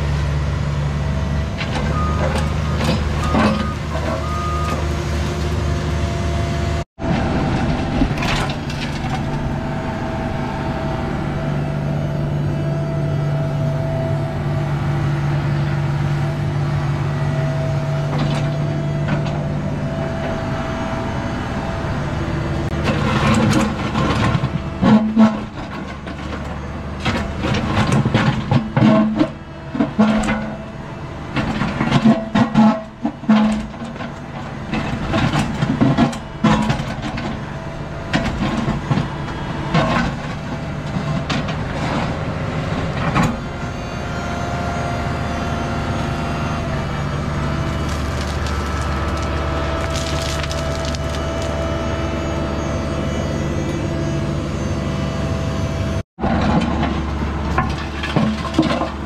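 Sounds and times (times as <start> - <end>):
excavator diesel engine running: 0.0 - 59.0
bucket scraping stony soil: 46.7 - 52.0.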